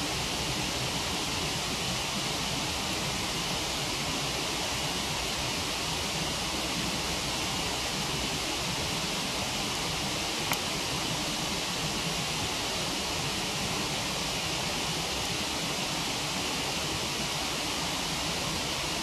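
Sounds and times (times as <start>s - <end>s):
campfire pop: 10.5s - 10.8s.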